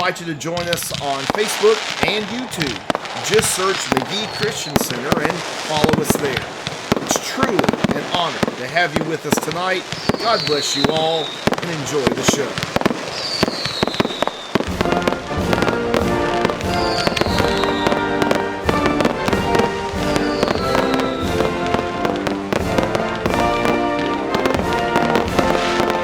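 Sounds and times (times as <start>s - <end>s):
fireworks bangs and crackles: 0.0s - 26.0s
background music: 14.6s - 26.0s.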